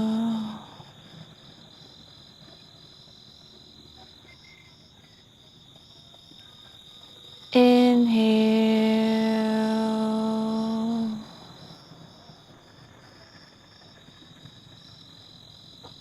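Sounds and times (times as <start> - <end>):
woman's drawn-out voice: 0.0 - 0.8
insects chirping: 0.0 - 16.0.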